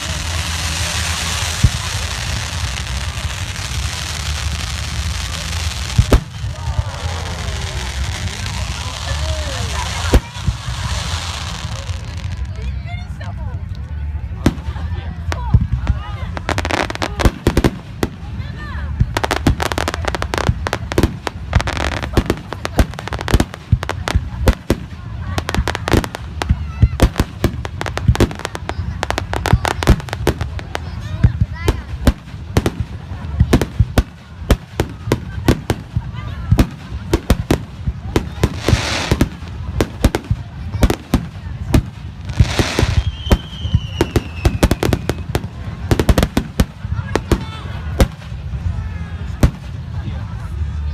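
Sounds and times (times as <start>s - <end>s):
firework bangs: 0.0s - 12.4s, 14.4s - 50.0s
firework crackling: 0.0s - 50.6s
firework whistle: 42.6s - 45.3s.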